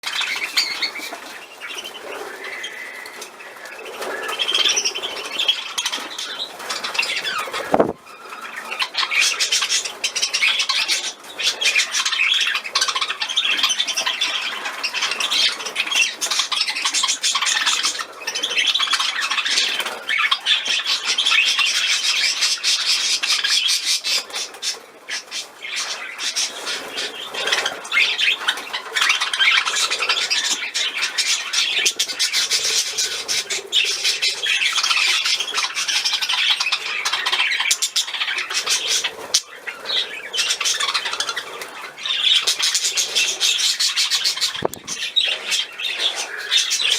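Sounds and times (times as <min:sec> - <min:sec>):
budgerigars chattering and chirping: 0:00.0 - 0:46.9.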